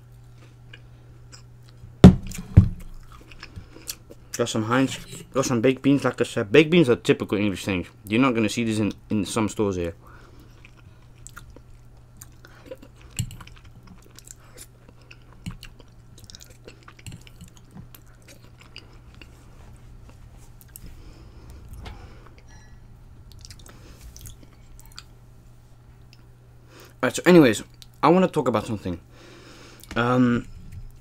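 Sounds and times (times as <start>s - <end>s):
person chewing: 0.3s - 4.3s, 10.3s - 25.2s
low hum: 17.0s - 27.0s.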